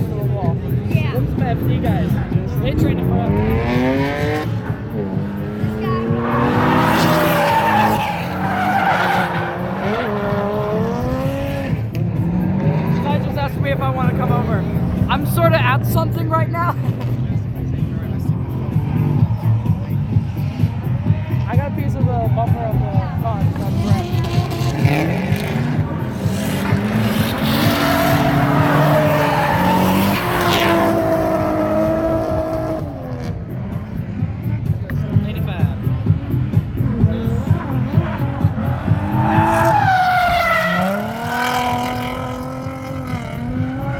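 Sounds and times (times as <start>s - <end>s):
car engines revving hard: 0.0s - 43.9s
tires skidding: 1.2s - 33.9s, 36.8s - 43.9s
tyres squealing: 6.1s - 10.5s, 26.2s - 31.2s, 38.6s - 42.8s.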